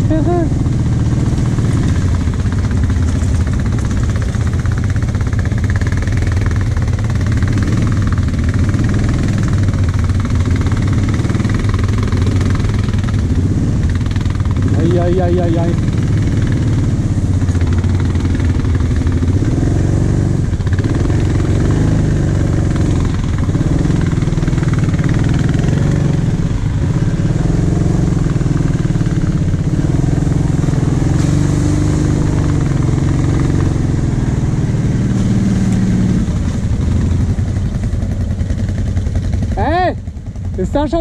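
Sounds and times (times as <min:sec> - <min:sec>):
quad bike engine revving: 0:00.0 - 0:41.0.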